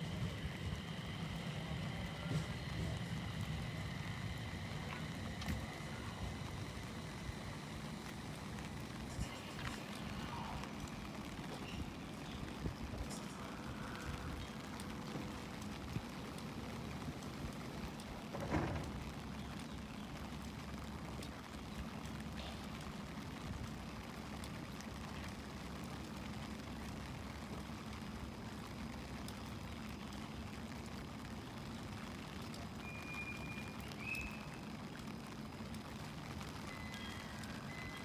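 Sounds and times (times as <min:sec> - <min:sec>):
electric train humming: 0:00.0 - 0:20.9
rain hissing: 0:00.0 - 0:38.0.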